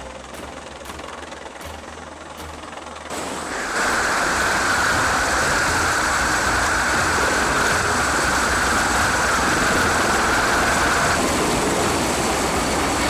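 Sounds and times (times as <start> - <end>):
engine roar: 0.0 - 13.0
high whine: 0.0 - 13.0.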